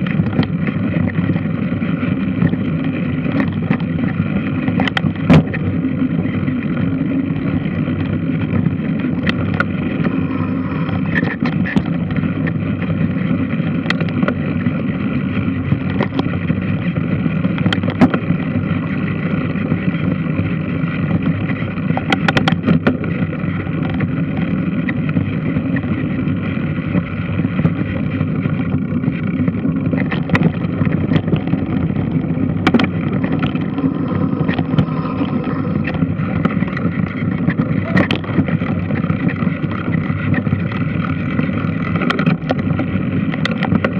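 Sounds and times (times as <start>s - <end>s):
washing machine drone: 2.2s - 16.0s, 29.5s - 43.9s.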